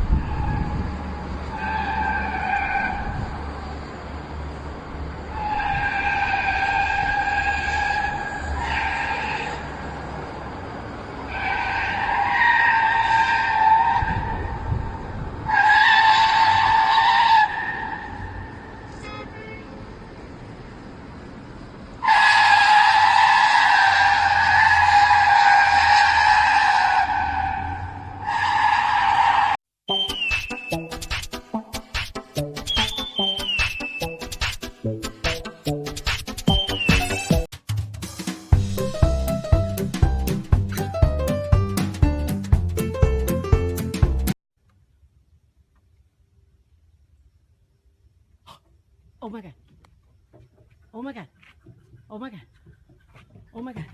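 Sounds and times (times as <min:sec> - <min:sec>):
car tyres squealing: 0:00.0 - 0:03.7, 0:05.3 - 0:10.3, 0:11.1 - 0:18.9, 0:22.0 - 0:29.6.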